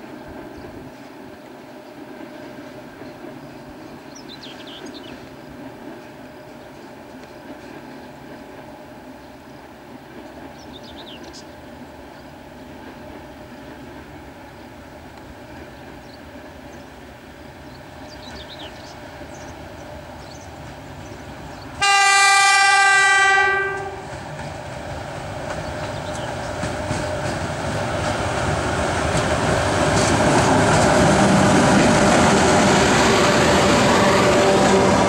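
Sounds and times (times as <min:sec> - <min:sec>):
train rumbling on rails: 0:00.0 - 0:35.0
locomotive horn blast: 0:21.8 - 0:24.1.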